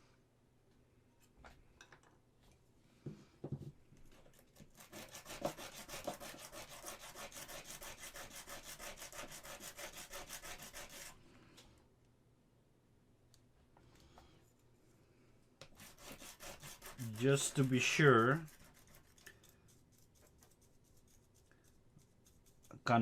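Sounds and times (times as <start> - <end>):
sanding resin part: 4.4 - 11.2, 15.7 - 23.0.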